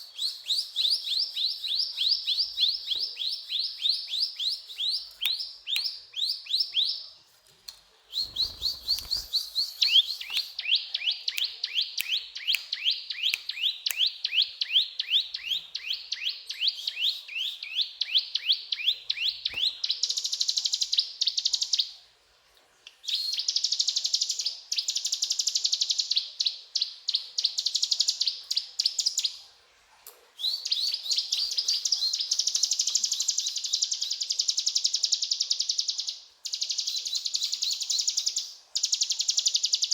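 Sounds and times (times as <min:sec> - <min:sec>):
bird singing chips and trills: 0:08.1 - 0:21.9, 0:30.4 - 0:39.9.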